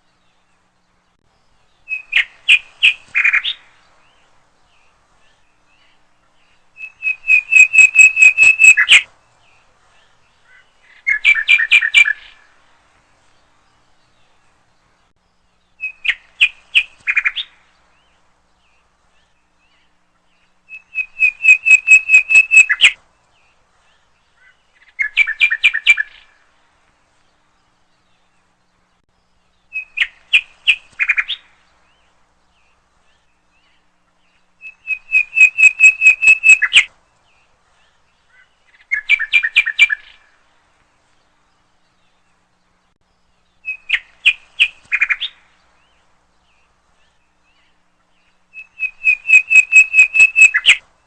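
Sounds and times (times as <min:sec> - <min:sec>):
songbird chirping: 0:00.0 - 0:51.0.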